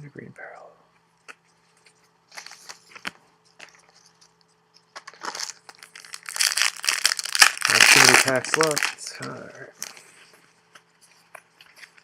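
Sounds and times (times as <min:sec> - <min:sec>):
cards clicking and rustling: 0:01.2 - 0:10.1
wrapper crinkling: 0:02.3 - 0:10.1.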